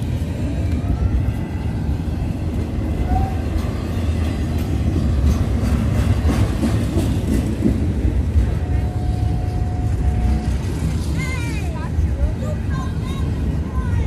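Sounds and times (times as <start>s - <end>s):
train clanks and rattles: 0.0s - 14.0s
train wheels rumbling on rail: 0.0s - 14.0s.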